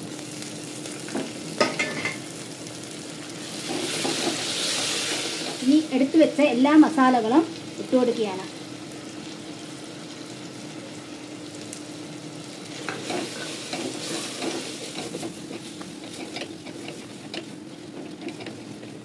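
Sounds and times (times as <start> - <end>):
food sizzling in oil: 0.0 - 19.0
wooden spatula scraping pot: 12.9 - 19.0.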